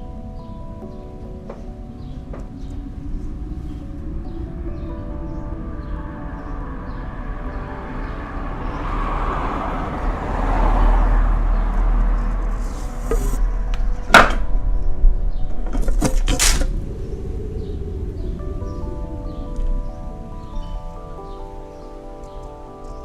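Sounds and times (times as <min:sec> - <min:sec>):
blizzard wind blowing: 0:00.0 - 0:23.0
sharp cracks: 0:15.7 - 0:16.8.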